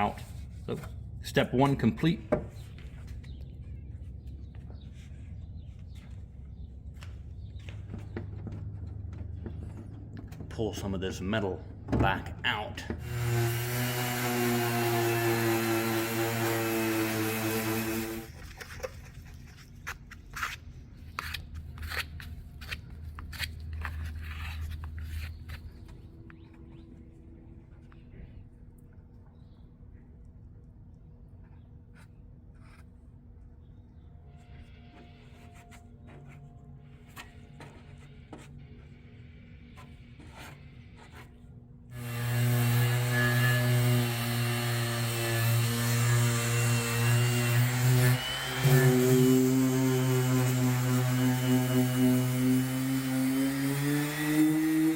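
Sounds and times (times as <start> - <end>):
electric power tool running: 13.0 - 18.3, 42.0 - 54.9
low hum: 21.6 - 42.3.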